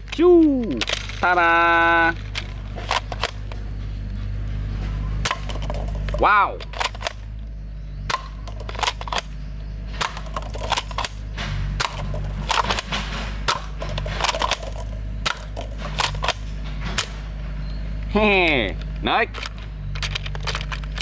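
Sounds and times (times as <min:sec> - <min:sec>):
plastic toy guns clicking: 0:00.0 - 0:03.6, 0:05.3 - 0:07.3, 0:08.1 - 0:09.4, 0:10.0 - 0:11.2, 0:11.8 - 0:17.2, 0:19.4 - 0:21.0
steady low hum: 0:00.0 - 0:21.0.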